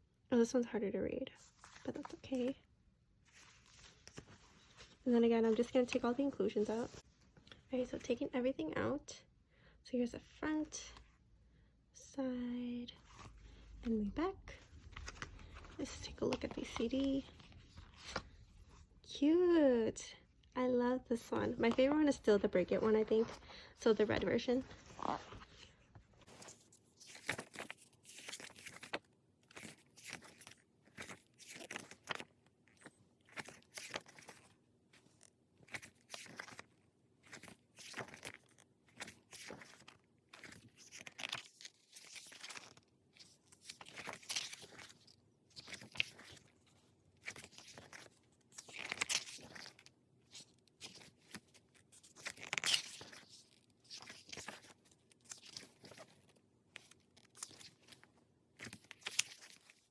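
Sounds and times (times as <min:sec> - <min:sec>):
stiff paper pages turning: 0:01.4 - 0:02.6, 0:03.3 - 0:07.1, 0:13.0 - 0:18.9, 0:21.2 - 0:59.9.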